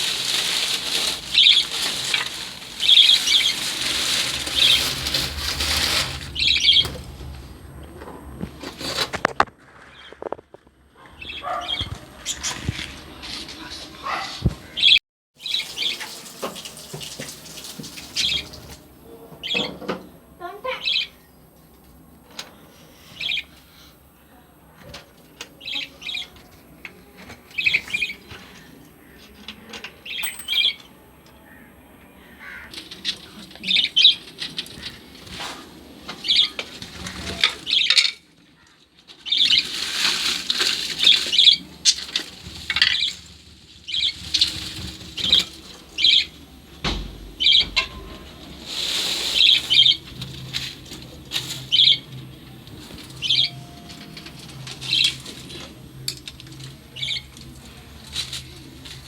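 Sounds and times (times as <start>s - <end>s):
wings flapping: 0.0s - 10.3s
lovebirds chirping: 0.3s - 5.2s, 6.3s - 7.4s, 11.0s - 16.0s, 22.9s - 24.4s, 25.5s - 35.0s, 43.9s - 50.2s, 51.4s - 55.3s.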